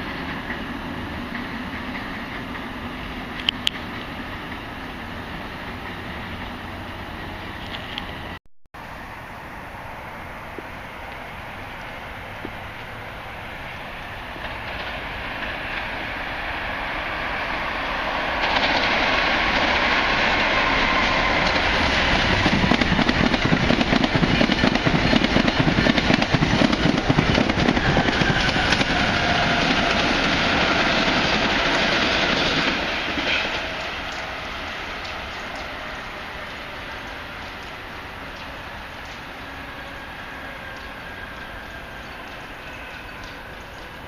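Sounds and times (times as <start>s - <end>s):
train rushing past: 0.0s - 44.0s
wheel clatter on rails: 18.4s - 34.3s.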